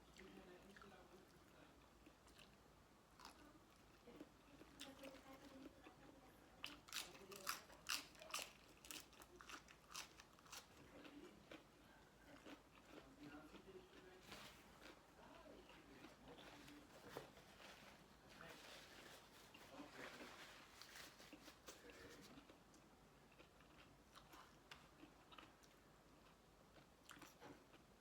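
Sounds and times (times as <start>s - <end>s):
person chewing crunchy food: 6.6s - 11.7s, 12.3s - 14.1s, 23.3s - 27.9s.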